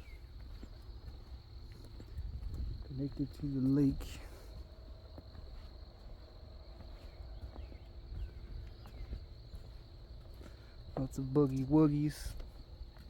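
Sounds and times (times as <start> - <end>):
soft footsteps: 0.0 - 13.0
bird chirps: 6.9 - 9.8.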